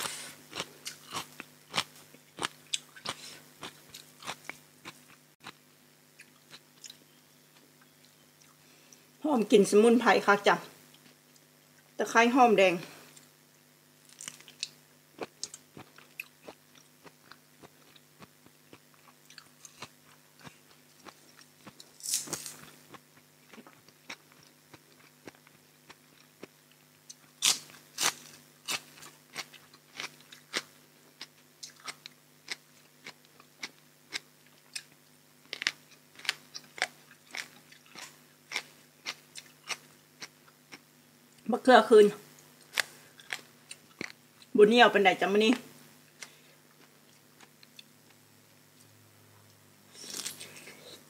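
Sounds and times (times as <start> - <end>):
crisp crunches of raw vegetables: 14.0 - 26.5, 49.9 - 51.0.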